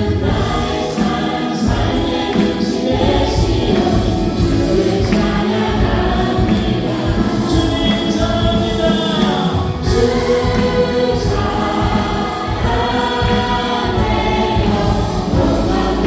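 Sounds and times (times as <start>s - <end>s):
praise band playing: 0.0s - 16.0s
voices singing together: 0.0s - 16.0s.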